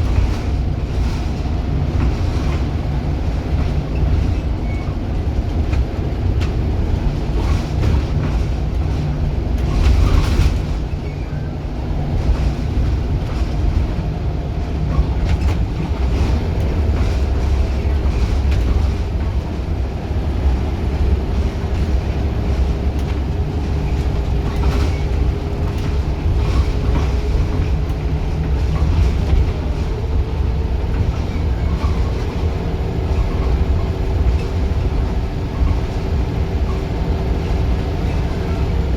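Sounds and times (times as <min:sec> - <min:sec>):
bus engine drone: 0:00.0 - 0:38.9
body knocks and rattles: 0:14.8 - 0:38.9.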